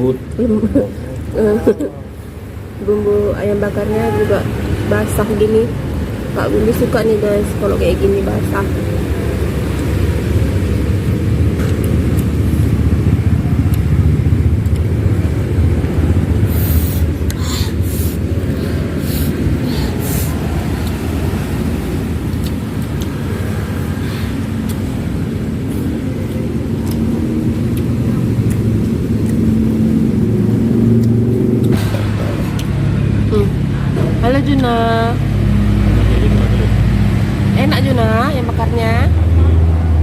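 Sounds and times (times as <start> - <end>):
road traffic rumble: 0.0 - 40.0.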